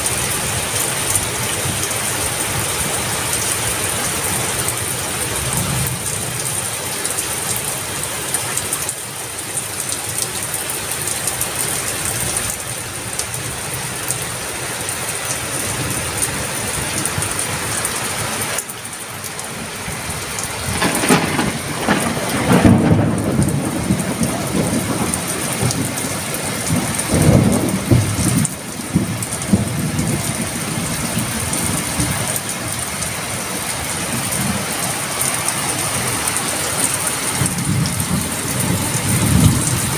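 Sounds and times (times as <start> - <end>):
rain falling steadily: 0.0 - 39.9
thunder rumbling: 4.3 - 6.6, 19.8 - 35.3, 36.8 - 39.9.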